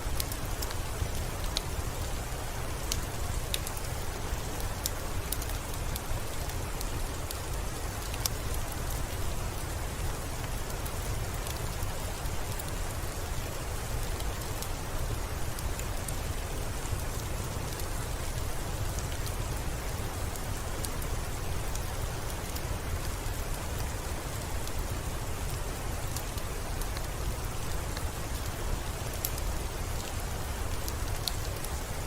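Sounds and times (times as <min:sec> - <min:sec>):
rain drops ticking: 0:00.0 - 0:32.0
steady rain falling: 0:00.0 - 0:32.0.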